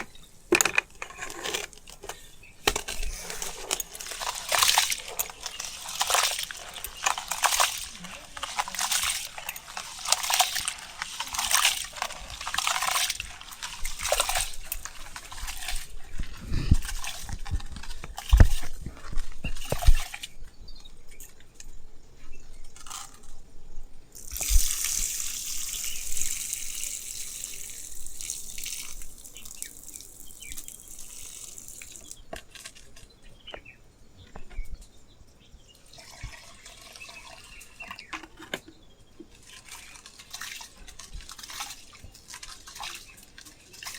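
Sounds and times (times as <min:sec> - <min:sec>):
water pouring: 0:00.0 - 0:20.3, 0:24.1 - 0:32.7, 0:35.8 - 0:38.6, 0:39.2 - 0:43.9
water dripping: 0:02.0 - 0:20.2, 0:24.1 - 0:32.4, 0:35.8 - 0:38.3, 0:39.2 - 0:43.9
water splashing: 0:02.6 - 0:20.3, 0:24.2 - 0:32.2, 0:35.9 - 0:38.4, 0:39.2 - 0:43.9.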